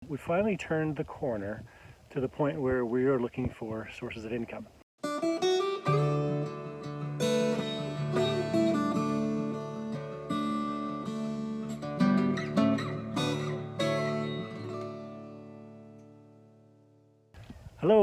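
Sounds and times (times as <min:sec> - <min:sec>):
acoustic guitar music: 0:05.0 - 0:17.3.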